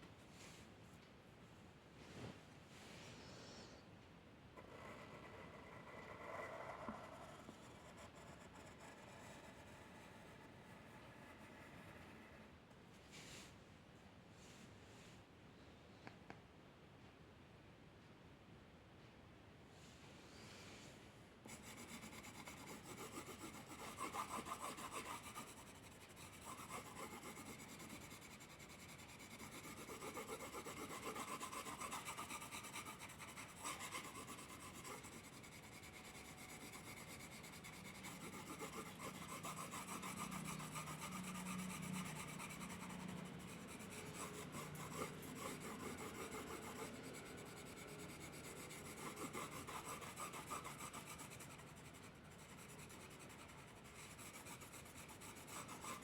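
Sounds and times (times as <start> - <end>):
drawing tool scratching on paper: 4.6 - 12.5, 21.5 - 56.0.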